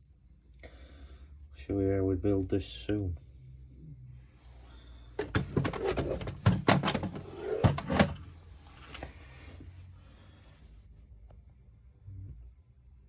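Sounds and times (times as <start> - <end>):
sharp knocks and clatters: 5.2 - 8.3.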